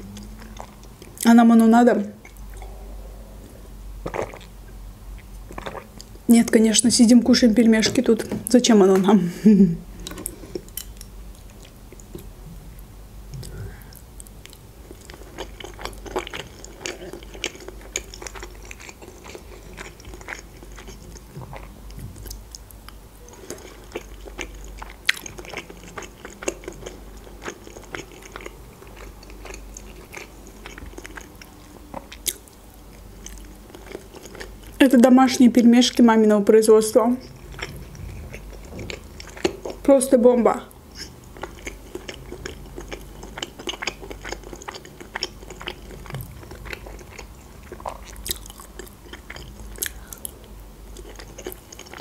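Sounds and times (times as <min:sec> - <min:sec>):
wet chewing and mouth clicks: 0:13.3 - 0:34.8, 0:37.2 - 0:39.9, 0:40.9 - 0:52.0.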